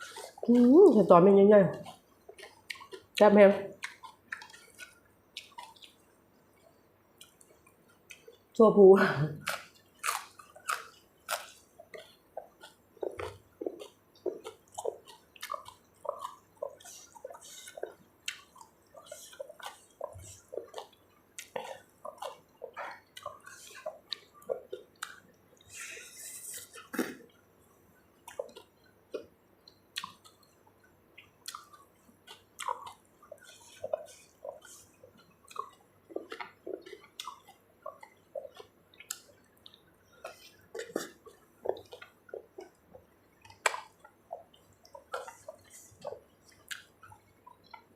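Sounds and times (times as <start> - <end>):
wet chewing and lip-smacking: 0.0 - 8.6, 9.4 - 47.9
sucking slurp: 13.1 - 27.3, 32.6 - 38.6.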